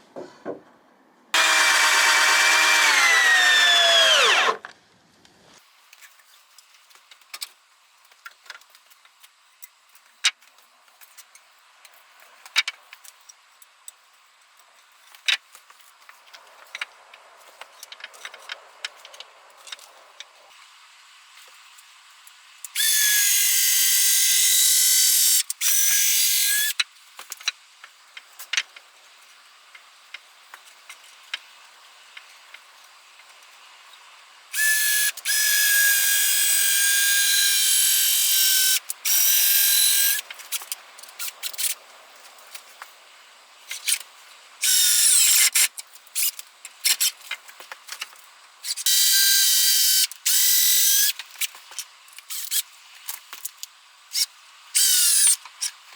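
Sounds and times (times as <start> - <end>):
electric power tool cutting wood: 1.4 - 4.6, 22.8 - 26.7, 34.6 - 40.2.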